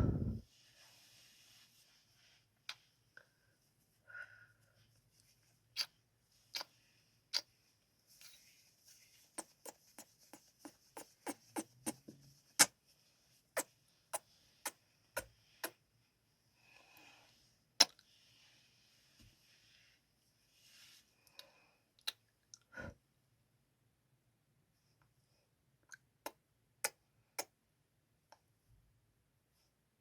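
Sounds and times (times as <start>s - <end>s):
faint breathing: 3.2s - 4.9s, 16.5s - 17.5s.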